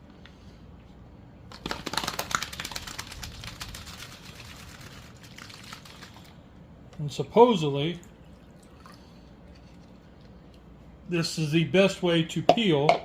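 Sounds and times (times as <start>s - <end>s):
eggshell rattling in a cup: 1.5s - 6.4s.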